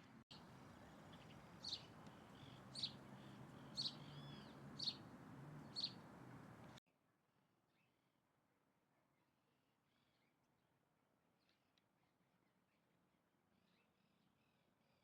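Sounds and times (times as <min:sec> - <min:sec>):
bird chirping: 0:00.3 - 0:06.8.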